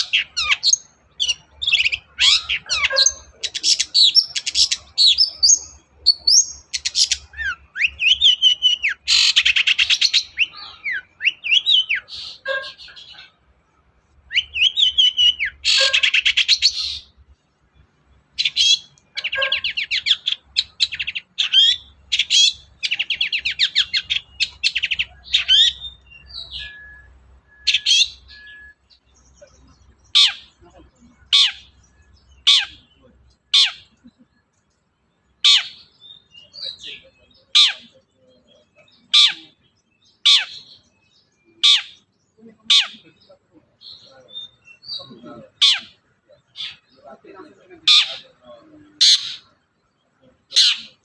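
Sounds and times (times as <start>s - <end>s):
shrike singing: 0.0s - 34.3s.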